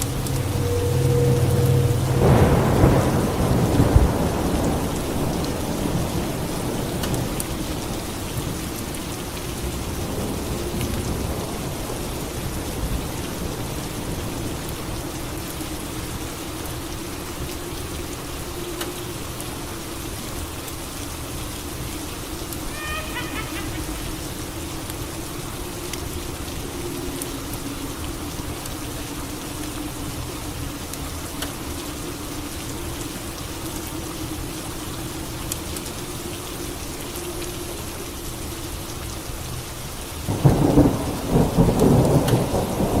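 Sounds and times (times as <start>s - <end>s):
thunder rumbling: 0.0s - 8.9s, 22.6s - 26.8s, 40.3s - 43.0s
steady rain: 0.0s - 43.0s.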